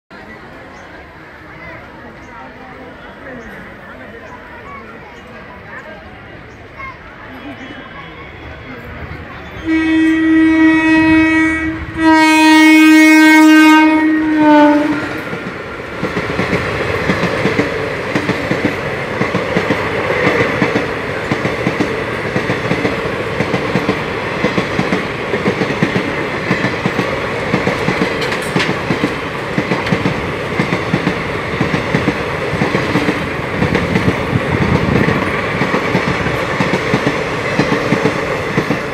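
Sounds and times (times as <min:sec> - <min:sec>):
train coaches rumbling past: 0:00.1 - 0:38.9
train horn blasts: 0:09.6 - 0:15.2
wheels clickety-clack over rail joints: 0:14.7 - 0:38.9.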